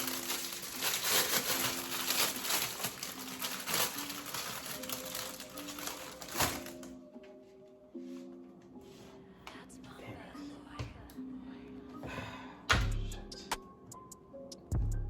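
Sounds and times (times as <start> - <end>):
plastic packaging crinkling: 0.0 - 7.0
soft background music: 0.0 - 15.0.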